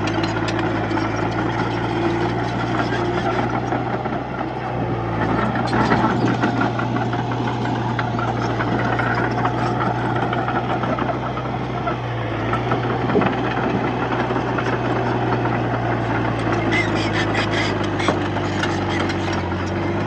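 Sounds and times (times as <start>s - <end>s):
metallic clatter and rattle: 0.0s - 3.6s
bulldozer diesel engine running: 0.0s - 20.0s.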